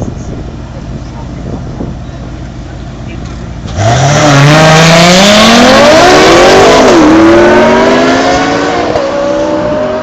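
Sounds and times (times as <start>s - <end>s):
car engine accelerating hard: 3.5s - 10.0s.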